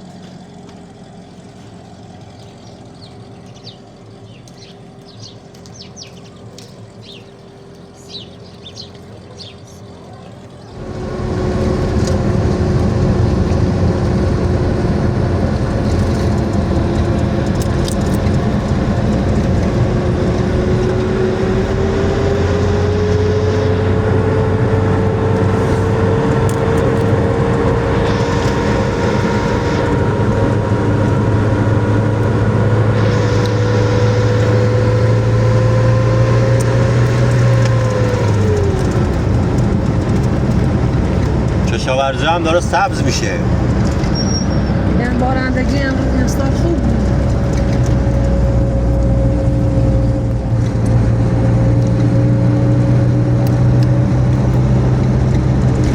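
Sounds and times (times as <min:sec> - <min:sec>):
birds chirping: 0:00.0 - 0:12.4
motor vehicle engine running: 0:00.0 - 0:55.9.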